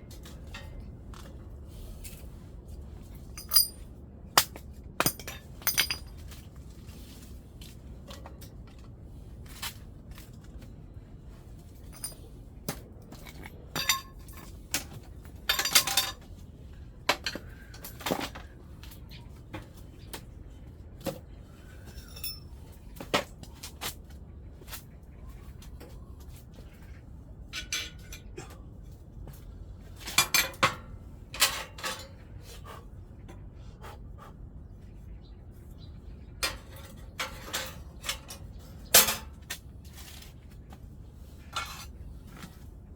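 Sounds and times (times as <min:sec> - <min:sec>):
metallic clinks of tools: 0:03.4 - 0:03.8, 0:05.0 - 0:06.2, 0:11.9 - 0:12.2, 0:22.0 - 0:22.5.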